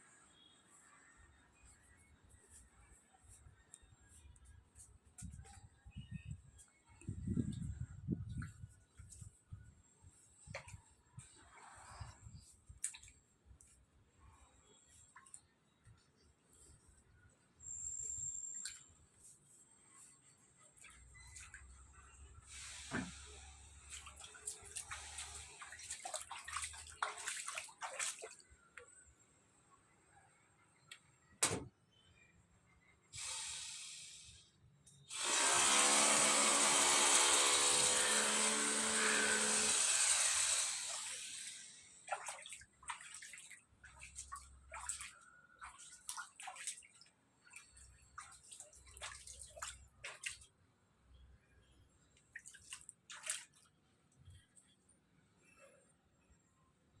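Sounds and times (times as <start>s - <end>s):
water gushing: 35.1s - 42.2s.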